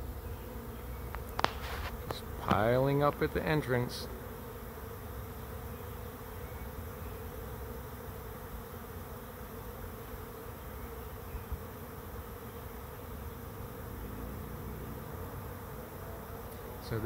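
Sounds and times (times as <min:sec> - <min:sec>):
honey bees buzzing: 0:00.0 - 0:17.0.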